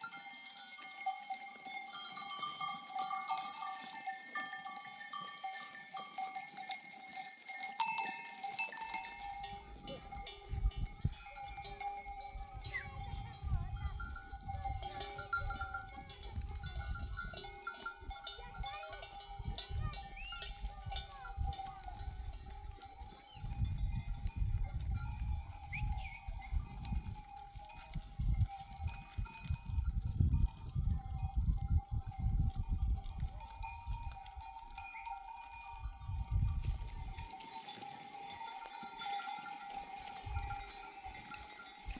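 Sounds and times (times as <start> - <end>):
sheep bells ringing: 0.0 - 41.9.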